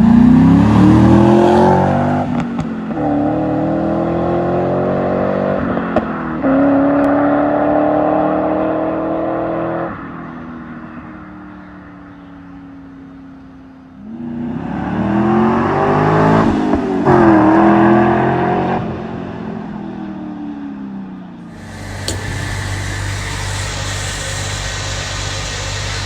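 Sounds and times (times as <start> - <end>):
car engine revving: 0.0 - 10.1, 21.5 - 26.0
low engine hum: 19.6 - 26.0
click: 21.6 - 26.0.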